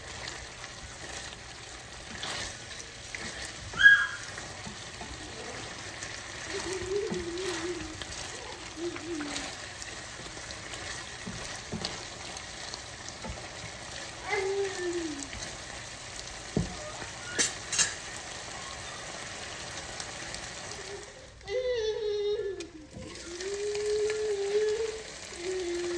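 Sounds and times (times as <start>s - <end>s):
food sizzling in a pan: 0.0s - 25.9s
spoon scraping and knocking pan: 10.2s - 12.4s.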